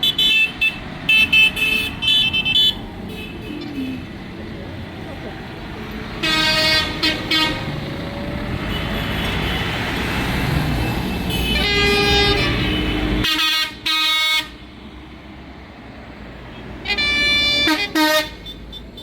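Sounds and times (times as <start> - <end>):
tractor horn toots: 6.2 - 7.7, 11.3 - 14.5, 16.8 - 19.0.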